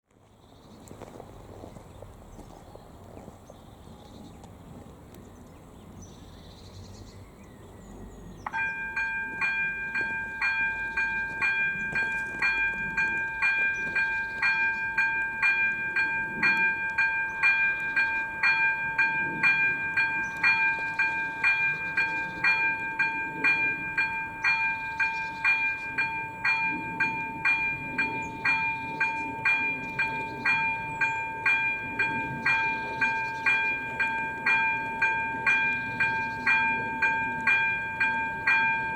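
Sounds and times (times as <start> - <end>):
level crossing warning bell: 8.5 - 38.9.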